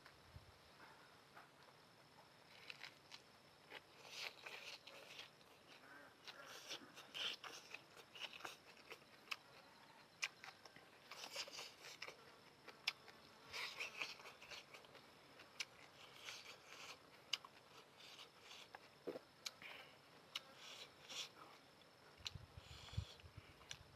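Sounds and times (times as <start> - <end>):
chewing and slurping noodles: 2.5 - 9.6, 10.2 - 12.2, 12.8 - 19.6.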